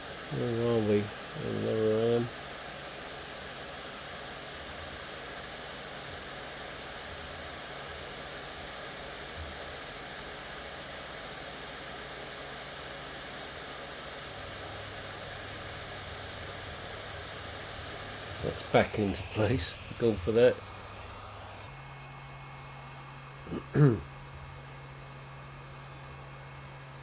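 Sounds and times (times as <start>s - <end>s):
steady hiss: 13.3s - 27.0s
low hum: 14.5s - 21.7s.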